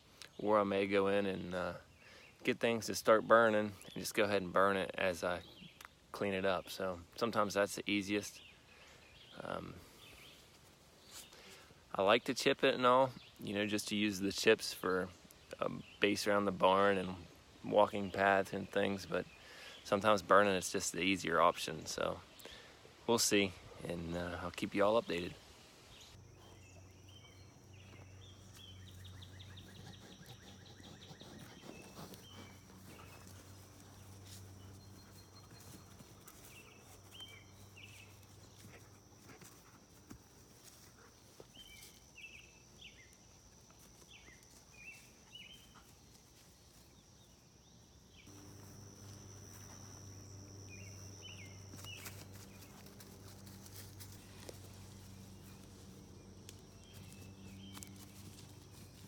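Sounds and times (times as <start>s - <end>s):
bird chirps: 25.9s - 39.4s, 40.9s - 59.0s
high insect drone: 26.2s - 59.0s
distant mechanical hum: 48.2s - 59.0s.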